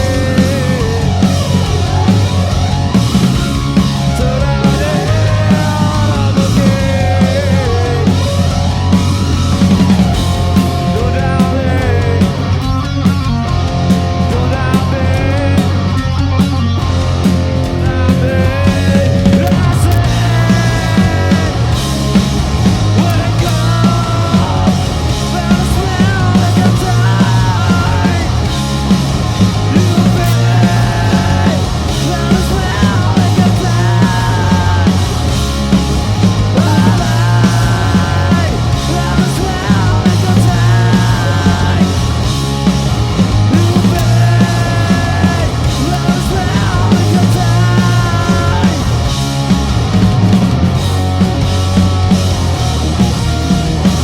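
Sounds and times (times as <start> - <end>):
bass guitar: 0.0 - 54.0
drum kit beat: 0.0 - 54.0
electric guitar: 0.0 - 54.0
rock band playing loudly: 0.0 - 54.0.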